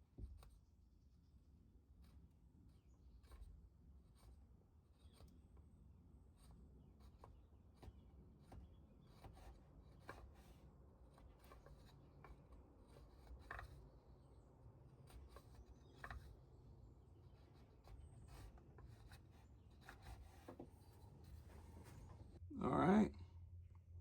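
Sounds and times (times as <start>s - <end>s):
chisel scraping wood: 2.8s - 5.5s, 6.1s - 22.4s.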